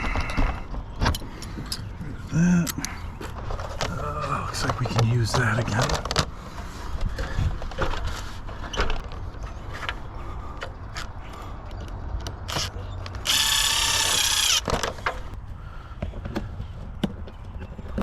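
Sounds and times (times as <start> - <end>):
mechanical ratchet-like whirring: 12.5 - 14.7.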